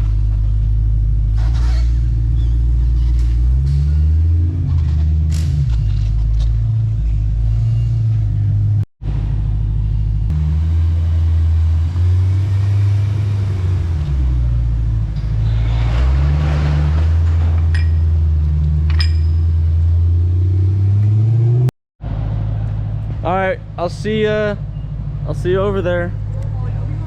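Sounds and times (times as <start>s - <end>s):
car engine droning: 0.0s - 27.0s
tyre and road noise: 0.0s - 27.0s.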